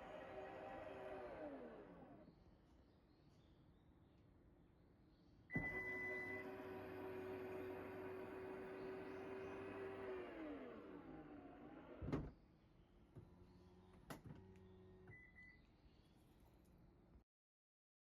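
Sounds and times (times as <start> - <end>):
electric tailgate motor humming: 5.6 - 12.3.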